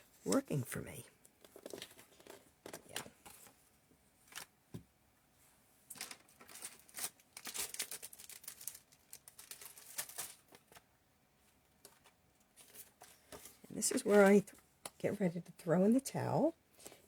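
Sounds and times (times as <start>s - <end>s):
paper rustling and scraping: 12.0s - 14.5s.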